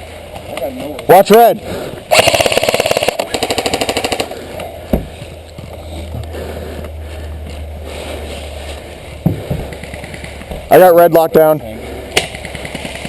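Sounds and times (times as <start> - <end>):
airsoft gun firing full-auto: 2.1 - 4.4.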